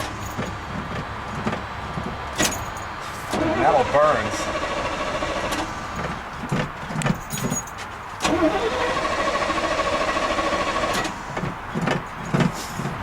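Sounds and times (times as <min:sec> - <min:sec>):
starter motor cranking engine: 0:03.2 - 0:06.1, 0:08.2 - 0:11.4.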